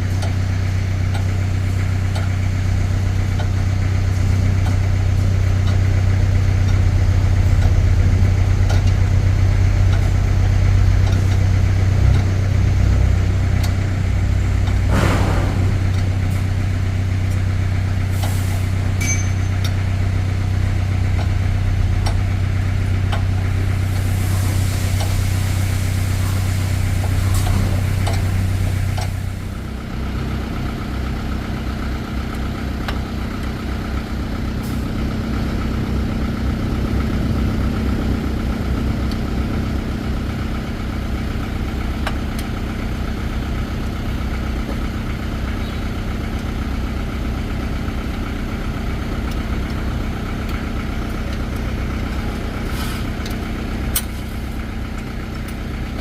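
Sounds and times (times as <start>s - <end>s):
engine running with low hum: 0.0s - 56.0s.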